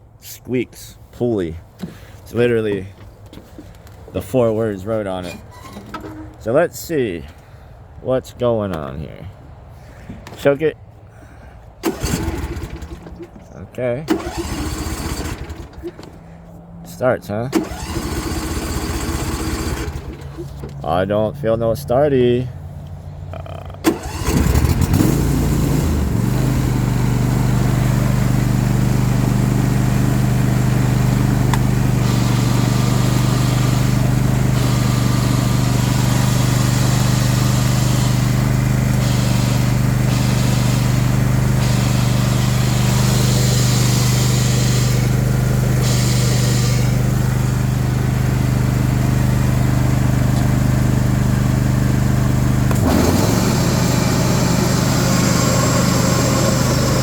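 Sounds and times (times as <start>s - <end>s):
lawn tractor engine running: 11.8s - 13.4s, 14.1s - 16.3s, 17.5s - 20.7s, 23.8s - 57.0s
high hissing grinding noise: 32.0s - 47.1s.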